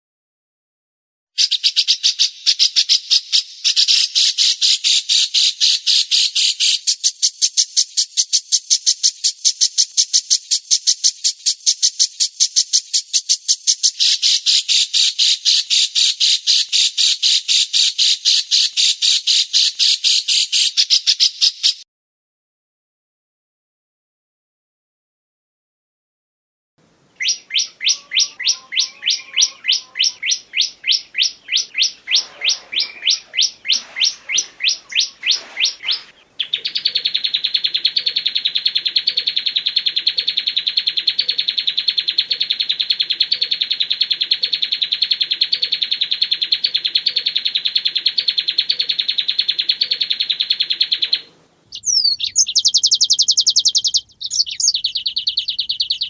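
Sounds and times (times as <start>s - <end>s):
rapid high bird trill: 1.4s - 21.8s, 27.2s - 56.0s
whistled bird song: 1.4s - 21.8s, 27.2s - 56.0s
sharp high bird notes: 51.7s - 56.0s.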